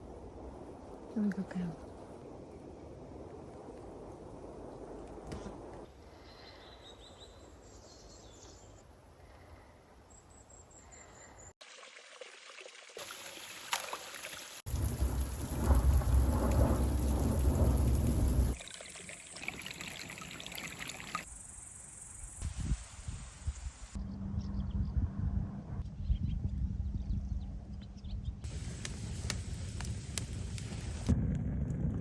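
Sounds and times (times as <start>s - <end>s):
thunder rumble: 0.0s - 6.5s, 14.7s - 18.6s, 26.6s - 32.0s
outdoor hiss: 13.0s - 18.6s, 19.2s - 24.0s, 28.5s - 31.1s
heavy rain: 14.7s - 18.6s, 28.5s - 31.2s.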